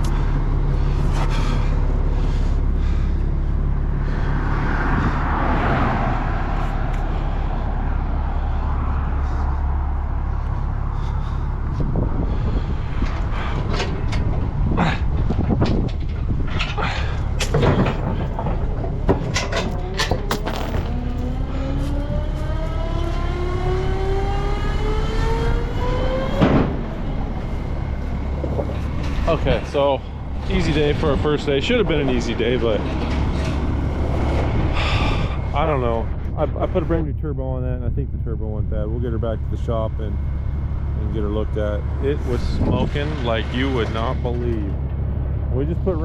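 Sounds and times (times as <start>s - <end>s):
vehicle engine humming: 0.0s - 46.0s
rush of noise: 0.8s - 37.2s.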